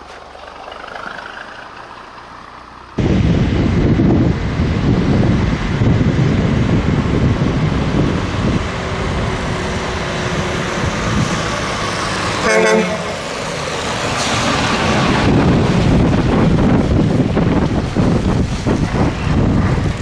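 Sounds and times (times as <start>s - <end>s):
trucks driving by: 0.0s - 20.0s
truck horn toot: 12.4s - 13.3s.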